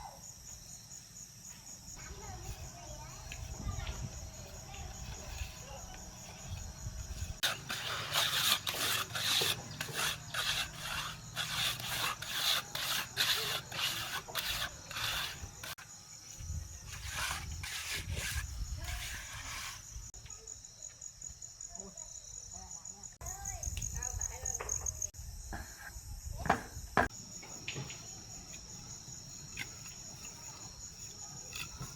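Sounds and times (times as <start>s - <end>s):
crickets chirping: 0.0s - 31.9s
hand tool rasping scrapes: 2.0s - 20.1s, 29.3s - 31.9s.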